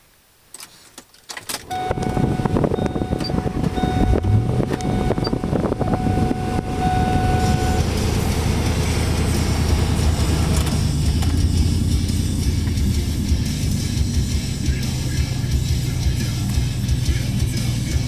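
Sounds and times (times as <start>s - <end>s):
truck engine starting and idling: 1.5s - 18.0s
thin steady whine: 1.7s - 12.6s.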